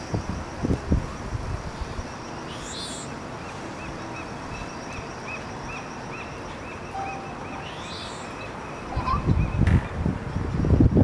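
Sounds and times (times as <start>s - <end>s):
background noise wash: 0.0s - 11.0s
bird chirps: 2.0s - 9.7s
high bird call: 2.4s - 9.7s.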